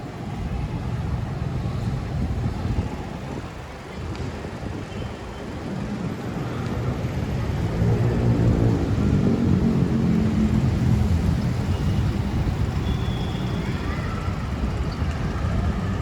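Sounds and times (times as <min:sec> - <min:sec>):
street noise: 0:00.0 - 0:16.0.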